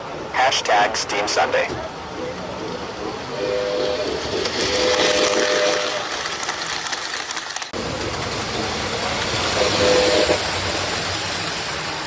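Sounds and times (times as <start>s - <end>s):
toy train chuffing hiss: 2.3s - 12.0s
toy train whistle blasts: 3.3s - 6.1s, 9.5s - 10.5s.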